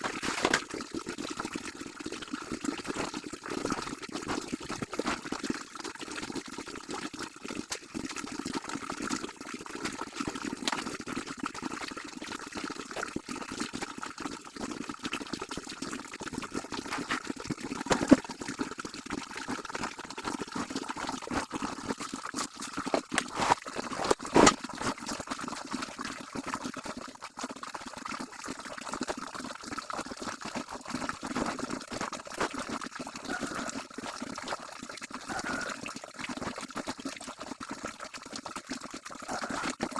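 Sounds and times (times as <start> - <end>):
water sloshing and splashing: 0.0 - 0.8, 16.8 - 18.3, 21.0 - 25.1.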